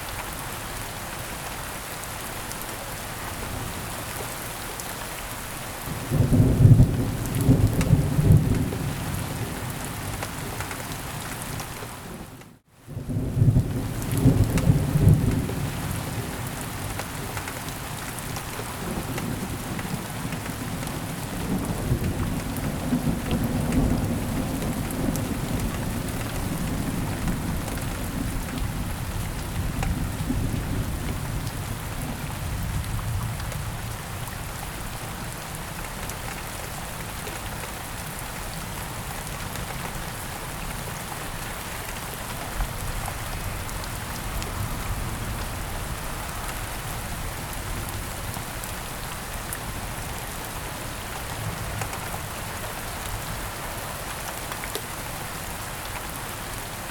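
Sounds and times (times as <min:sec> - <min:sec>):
close raindrops: 0:00.0 - 0:56.9
heavy rainfall: 0:00.0 - 0:56.9
low rolling thunder: 0:05.9 - 0:09.6.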